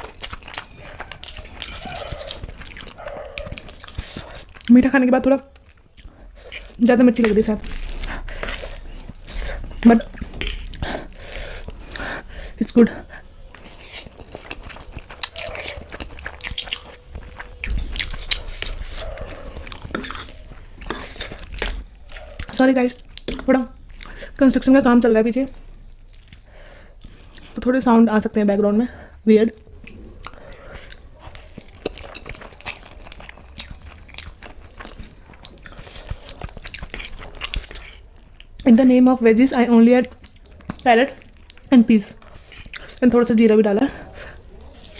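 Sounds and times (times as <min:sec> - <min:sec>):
person chewing food: 0:00.0 - 0:27.7, 0:29.0 - 0:44.9.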